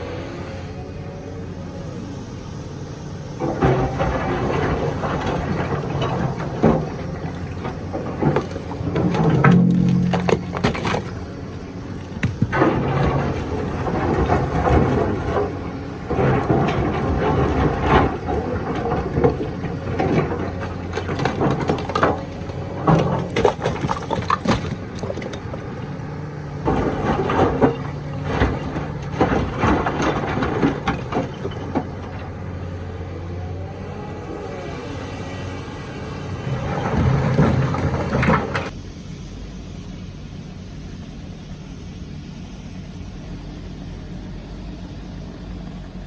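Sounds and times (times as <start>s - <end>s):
diesel engine running under load: 0.0s - 46.0s
rock scraping against steel bucket: 3.6s - 25.7s.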